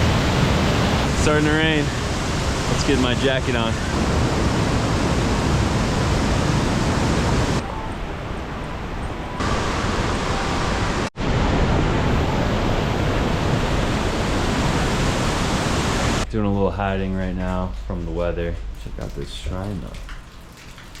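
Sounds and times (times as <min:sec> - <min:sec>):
heavy rain: 0:00.0 - 0:07.6, 0:09.4 - 0:16.2.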